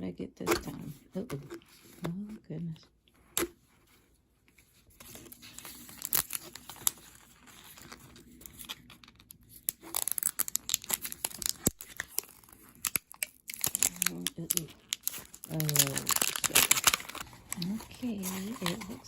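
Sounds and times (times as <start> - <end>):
packaging being torn and crinkled: 4.9 - 19.0.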